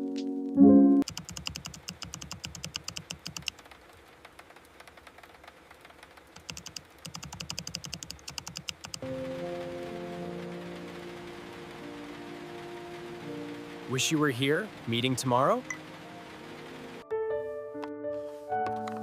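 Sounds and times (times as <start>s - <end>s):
keyboard key clicks: 1.0s - 3.5s, 6.4s - 9.1s.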